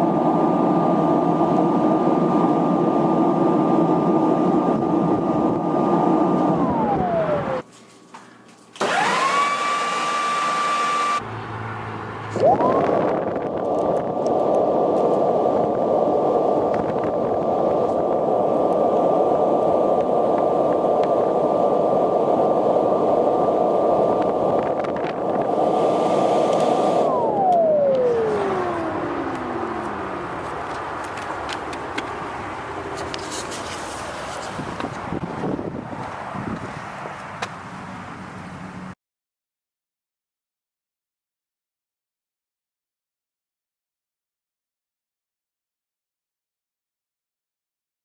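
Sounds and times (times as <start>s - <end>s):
leaf blower motor whining: 0.0s - 7.6s, 8.8s - 11.2s, 12.4s - 35.3s
rushing air: 12.1s - 37.2s.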